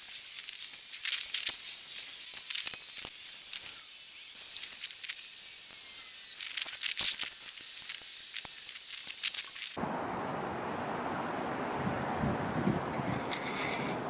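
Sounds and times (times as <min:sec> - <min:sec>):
welding arc hissing and crackling: 0:00.0 - 0:09.8.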